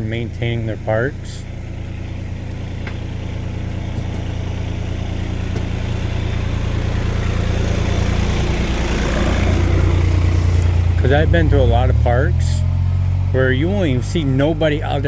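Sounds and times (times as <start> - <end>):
machine engine droning: 0.0 - 15.0.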